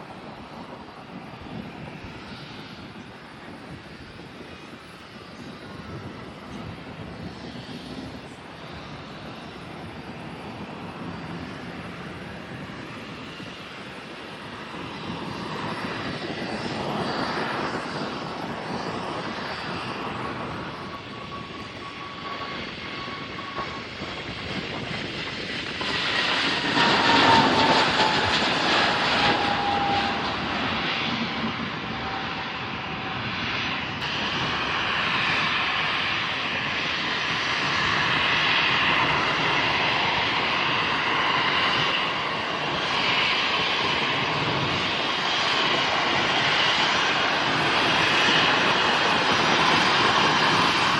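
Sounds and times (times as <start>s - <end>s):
airliner engines passing: 0.0s - 50.9s
falling engine whine: 5.4s - 50.9s.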